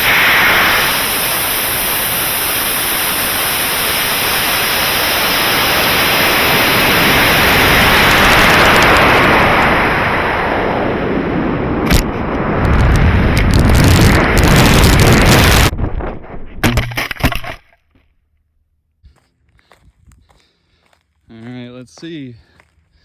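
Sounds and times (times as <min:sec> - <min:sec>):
rocket motor roaring: 0:00.0 - 0:17.6.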